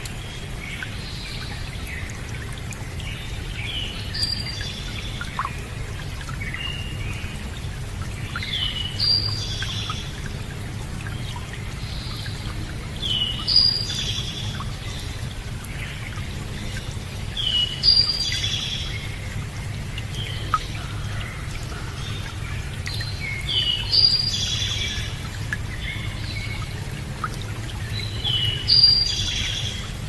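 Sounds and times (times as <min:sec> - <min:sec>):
running water: 0:00.0 - 0:30.0
songbird singing: 0:08.2 - 0:10.4, 0:11.0 - 0:30.0.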